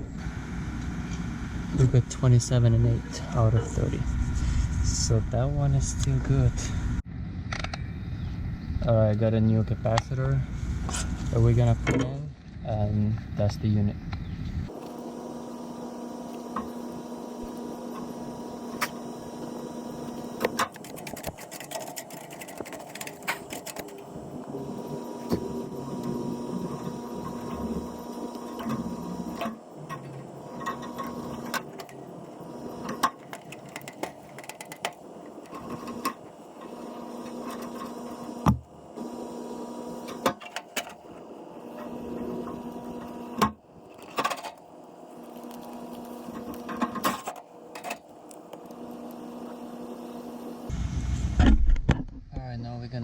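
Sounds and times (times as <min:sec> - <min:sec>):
steady machine hum: 0:00.0 - 0:53.0
clicks and knocks of hand work: 0:32.8 - 0:36.2.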